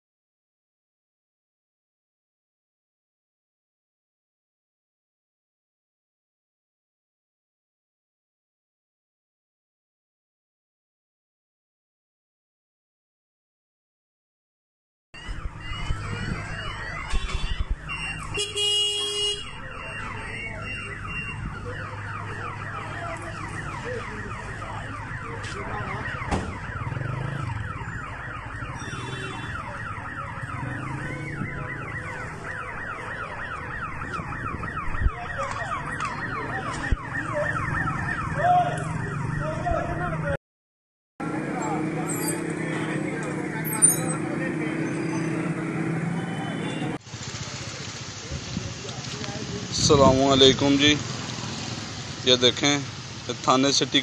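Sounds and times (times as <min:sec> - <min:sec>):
car alarm whooping: 0:15.2 - 0:40.1.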